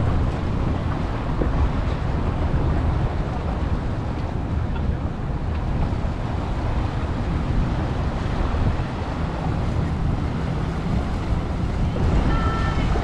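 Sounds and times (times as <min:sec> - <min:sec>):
boat engines rumbling: 0:00.0 - 0:13.0
wind buffeting microphone: 0:00.0 - 0:13.0.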